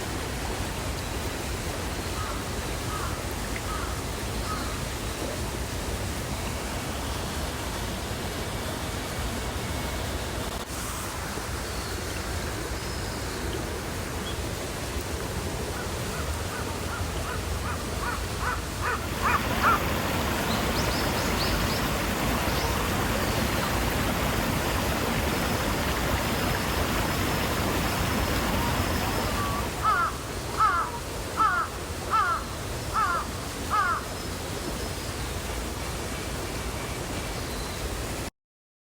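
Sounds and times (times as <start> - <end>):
small waterfall rushing: 0.0 - 38.3
crow cawing: 16.5 - 19.8, 29.8 - 34.0.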